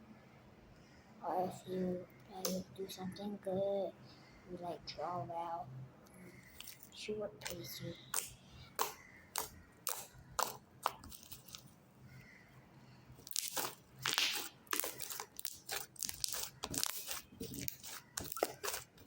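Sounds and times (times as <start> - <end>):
slime crackling and crunching: 6.4 - 11.7, 13.2 - 19.0
slime clicks and pops: 13.3 - 15.8.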